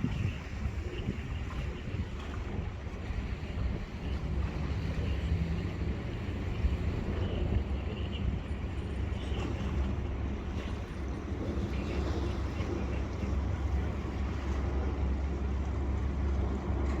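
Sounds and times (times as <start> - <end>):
wind noise: 0.0 - 4.7
boat engines rumbling: 0.0 - 17.0
water wash: 0.0 - 17.0.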